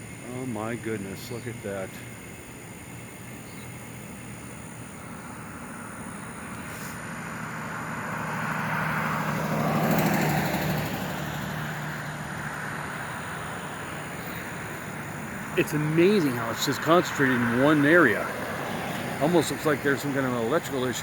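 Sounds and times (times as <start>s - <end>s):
vehicle passing by: 5.2s - 21.0s.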